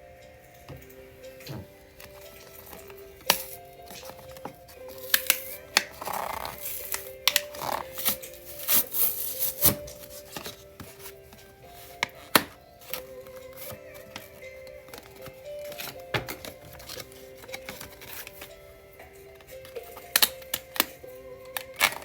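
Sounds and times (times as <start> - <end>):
soft background music: 0.0 - 22.0
packaging rustling scrapes: 1.9 - 20.3.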